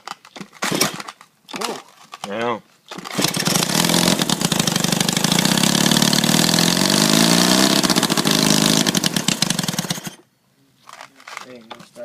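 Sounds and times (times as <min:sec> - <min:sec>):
go-kart engine running: 0:03.1 - 0:10.2.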